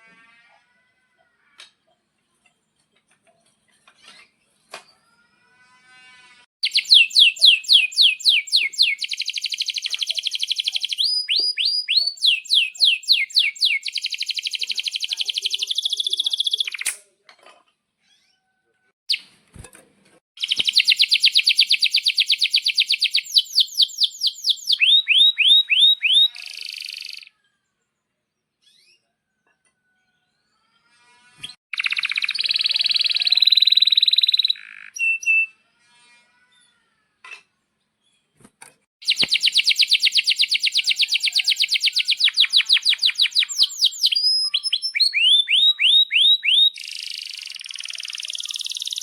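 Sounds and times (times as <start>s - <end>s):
canary singing trills: 6.6s - 17.0s, 20.4s - 27.3s, 31.7s - 35.5s, 39.0s - 49.0s.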